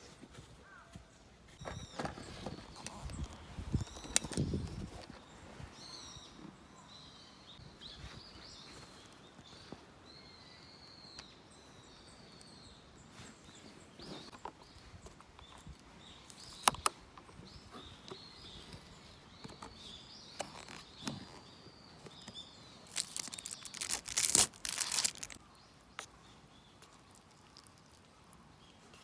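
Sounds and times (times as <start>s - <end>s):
small bird calling: 0.4s - 29.0s
rustling crinkling noise: 1.5s - 5.9s, 13.1s - 29.0s.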